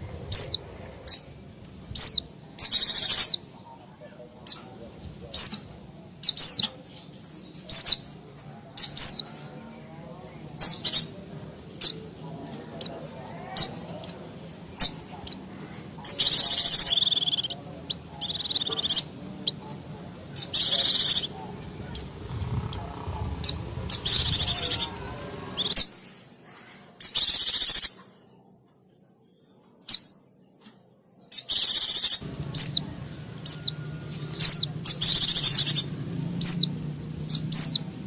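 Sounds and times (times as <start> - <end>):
bird chirping: 0.3 - 1.3, 1.9 - 9.7, 10.5 - 26.0, 27.0 - 28.0, 31.1 - 38.0
buzzy bird chattering: 0.3 - 1.3, 1.9 - 3.7, 4.4 - 8.2, 8.8 - 9.4, 10.5 - 12.1, 12.7 - 26.0, 27.0 - 28.0, 31.3 - 38.0.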